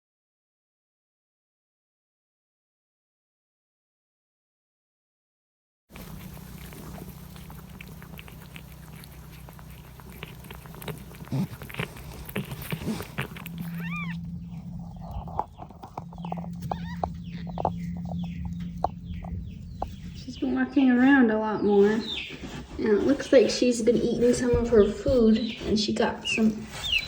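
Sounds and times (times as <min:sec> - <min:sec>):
low steady hum: 0:05.9 - 0:21.9
chick peeping: 0:06.0 - 0:27.0.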